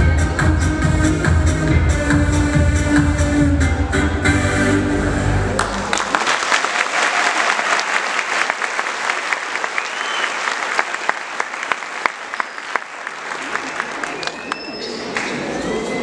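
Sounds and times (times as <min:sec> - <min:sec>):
recorded dance track: 0:00.0 - 0:05.5
audience clapping: 0:05.6 - 0:15.5.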